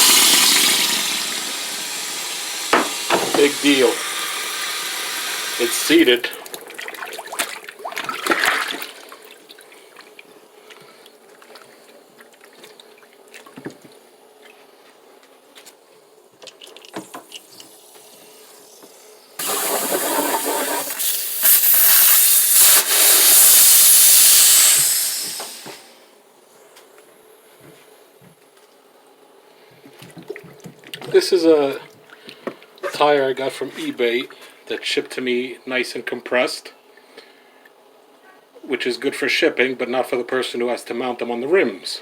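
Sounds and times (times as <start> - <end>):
water rushing at a sink: 0.0 - 10.2, 16.6 - 21.8.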